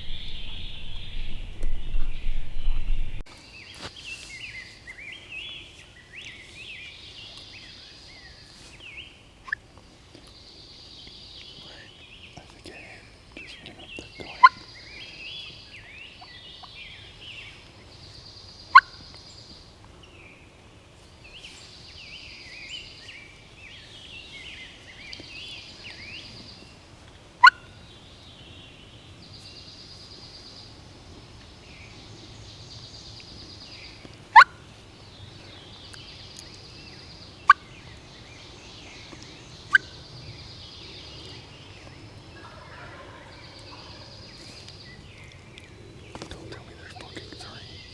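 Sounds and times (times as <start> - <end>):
songbirds chorus: 0.0 - 47.9
turkey gobbling: 42.4 - 44.2.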